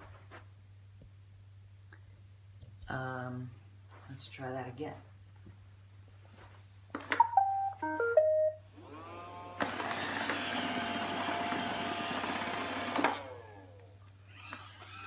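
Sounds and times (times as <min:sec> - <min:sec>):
start-up melody of beeps: 0:07.2 - 0:08.6
vacuum and brush motors running: 0:08.7 - 0:15.0.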